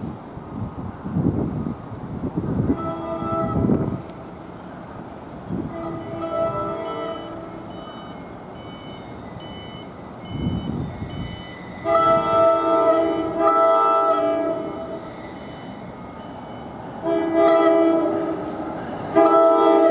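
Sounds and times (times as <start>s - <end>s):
train horn blasts: 2.6s - 4.0s, 5.5s - 8.1s, 10.3s - 16.3s, 17.0s - 19.9s.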